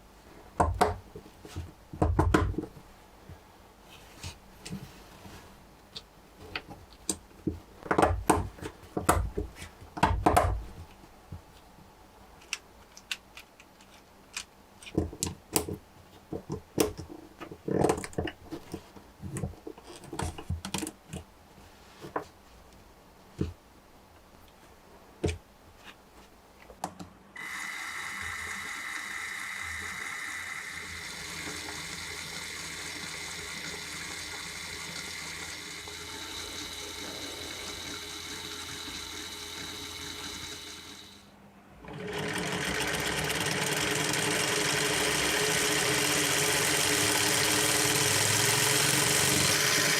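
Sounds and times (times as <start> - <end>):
plastic parts clicking together: 12.4 - 15.8
model engine mechanical whir: 27.4 - 49.9.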